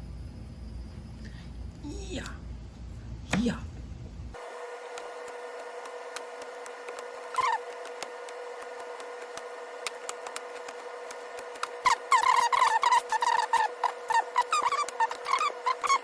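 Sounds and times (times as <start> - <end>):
squeaky scraping on wood: 6.9 - 8.1, 11.4 - 16.0.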